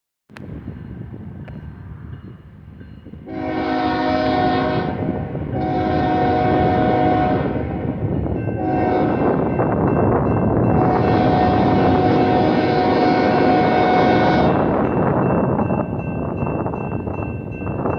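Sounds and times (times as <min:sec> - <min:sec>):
low rumble of train: 0:00.3 - 0:17.9
train air horn blasts: 0:03.2 - 0:09.6, 0:10.7 - 0:14.8.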